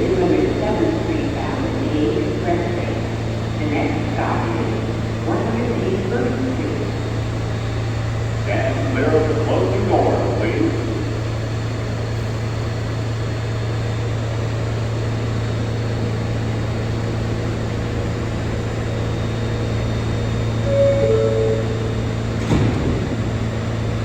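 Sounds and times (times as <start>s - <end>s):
subway train low hum: 0.0s - 24.0s
two-note door chime: 20.7s - 22.4s.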